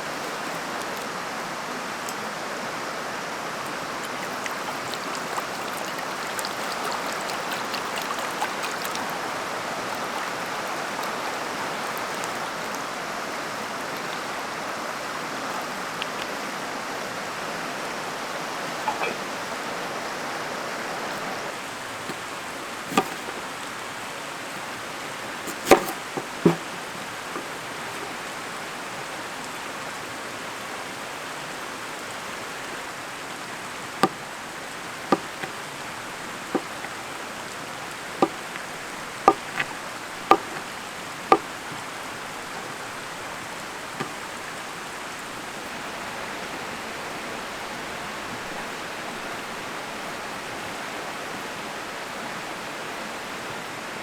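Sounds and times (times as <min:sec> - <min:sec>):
mountain stream flowing: 0:00.0 - 0:54.0
sharp clicks or knocks: 0:22.9 - 0:23.4, 0:25.5 - 0:26.8.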